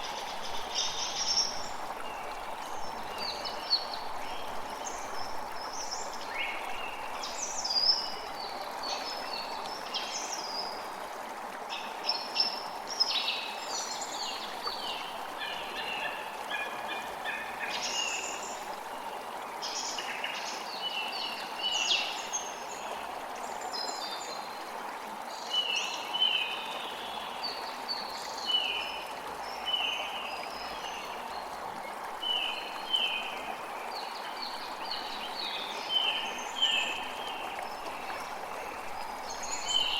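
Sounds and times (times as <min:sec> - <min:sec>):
water rushing: 0:26.4 - 0:39.9.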